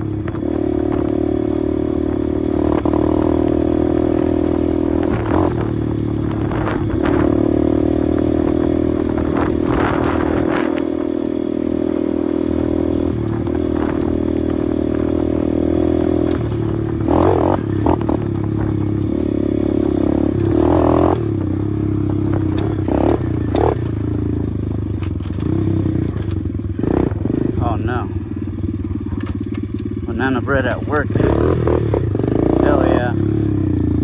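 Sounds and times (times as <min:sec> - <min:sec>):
motorbike engine running: 0:00.0 - 0:34.0.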